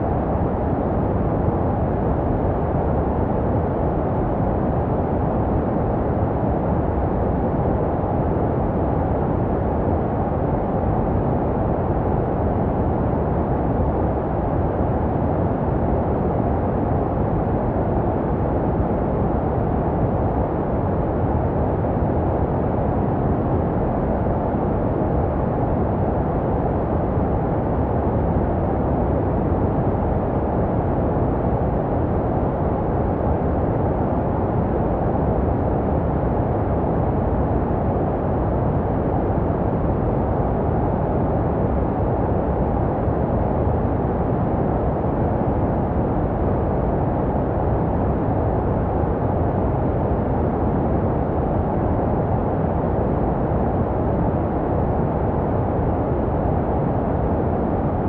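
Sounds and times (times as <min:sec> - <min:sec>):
low-pitched white noise: 0:00.0 - 0:58.0.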